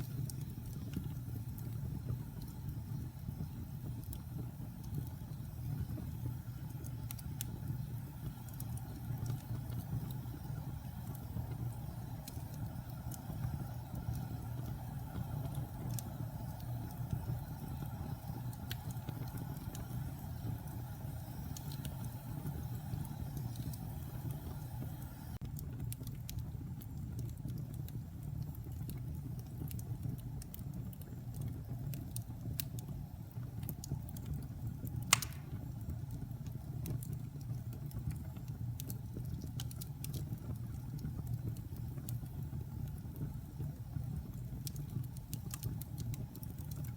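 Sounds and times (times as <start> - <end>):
burning logs crackling: 0.0 - 46.9
fireplace flames rumbling: 0.0 - 46.9
loud fire pop: 35.1 - 35.7.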